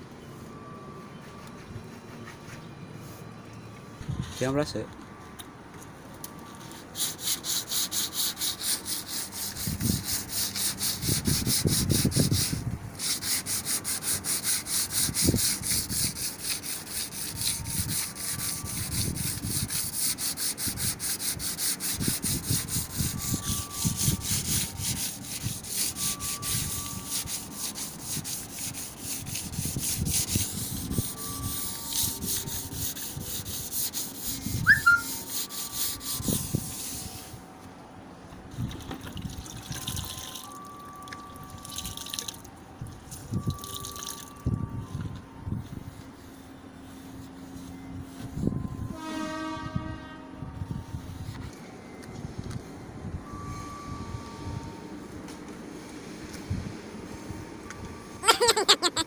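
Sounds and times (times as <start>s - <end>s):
sandpaper scraping back and forth: 6.7s - 37.4s, 58.2s - 59.0s.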